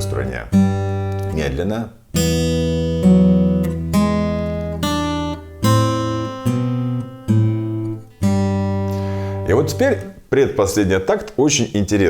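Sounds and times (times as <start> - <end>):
acoustic guitar plucked slowly: 0.0 - 1.4, 2.1 - 10.2.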